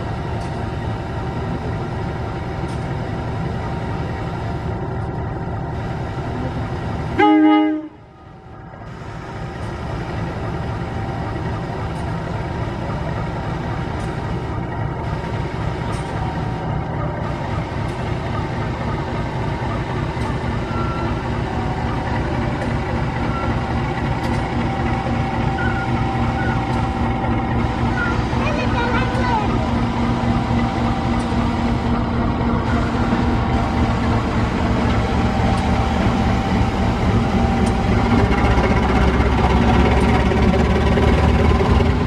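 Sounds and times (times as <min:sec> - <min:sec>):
diesel locomotive running: 0:00.0 - 0:42.0
loud train horn blast: 0:07.2 - 0:08.0.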